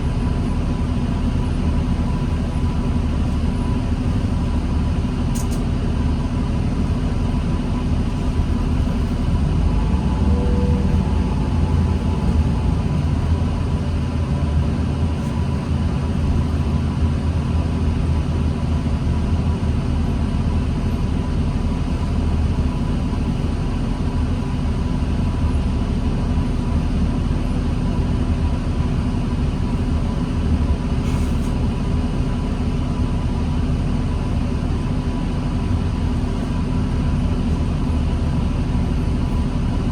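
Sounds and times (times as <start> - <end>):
bus engine droning: 0.0 - 39.9
thin steady whine: 8.8 - 14.2.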